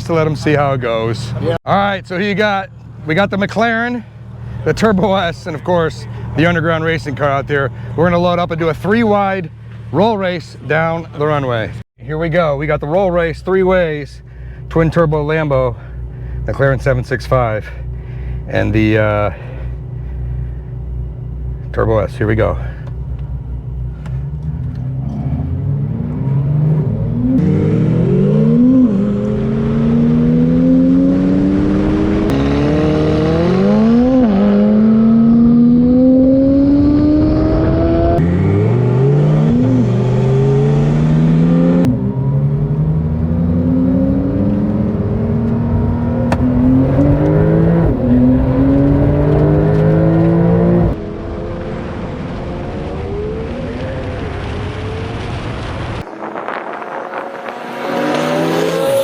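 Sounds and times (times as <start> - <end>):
car engine revving through gears: 22.8 - 53.5, 56.8 - 59.0.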